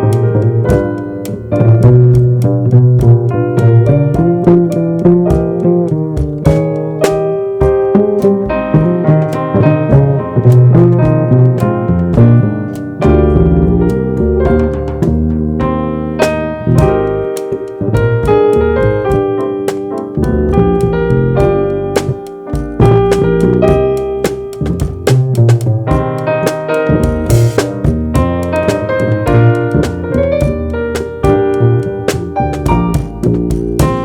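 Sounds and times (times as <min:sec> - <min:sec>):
bass: 0:00.0 - 0:34.0
drum and cymbal strikes: 0:20.8 - 0:34.0.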